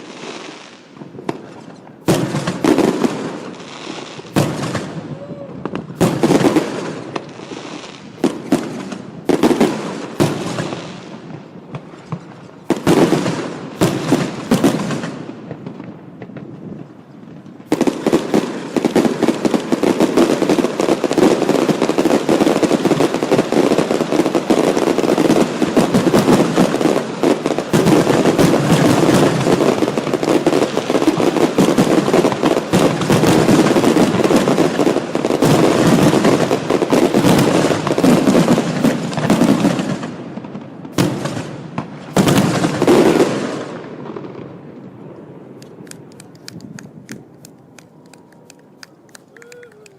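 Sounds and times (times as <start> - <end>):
rapid firework bangs: 0.0 - 44.8
firework shell bursts crackling: 45.5 - 49.9.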